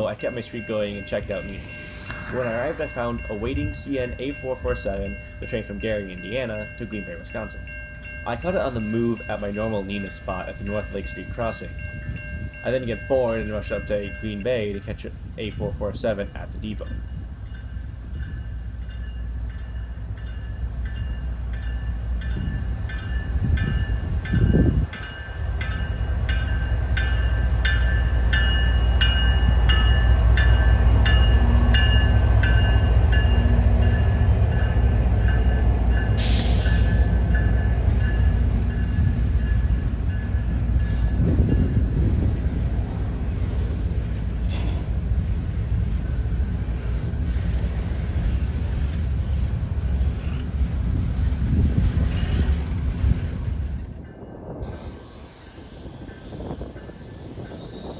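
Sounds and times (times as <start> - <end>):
crossing bell clanging: 0.0 - 43.6
freight train rumbling: 0.0 - 57.9.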